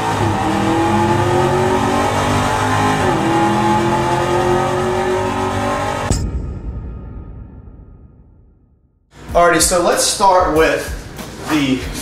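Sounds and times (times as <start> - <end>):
car engine accelerating: 0.0 - 6.1.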